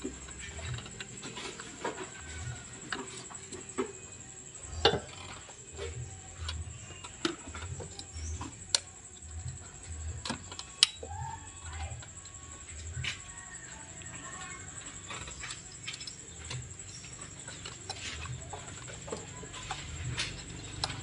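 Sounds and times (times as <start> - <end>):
tools clicking and knocking: 4.8 - 21.0.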